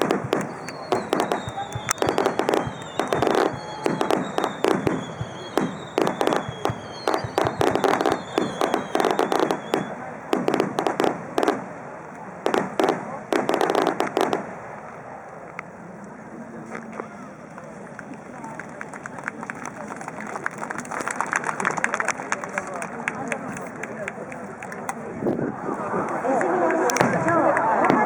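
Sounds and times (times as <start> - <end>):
fireworks bangs and crackles: 0.0 - 15.2, 27.0 - 28.0.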